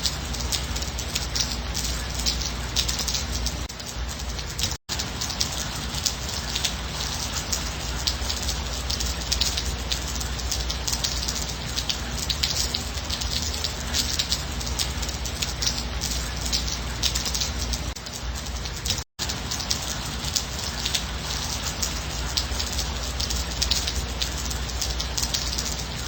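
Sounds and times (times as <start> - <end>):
light rain: 0.0 - 26.0.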